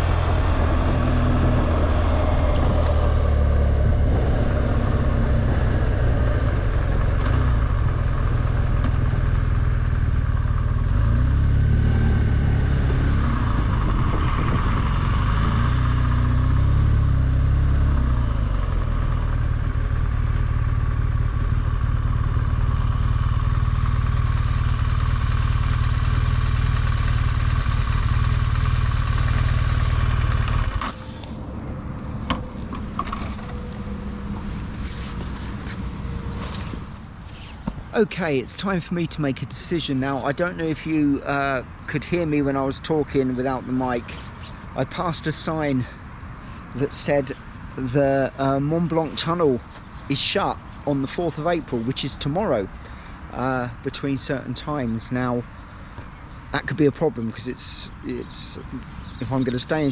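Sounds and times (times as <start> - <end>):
motorcycle engine running: 0.0 - 38.8, 58.2 - 59.9
wind and road noise: 0.0 - 59.9.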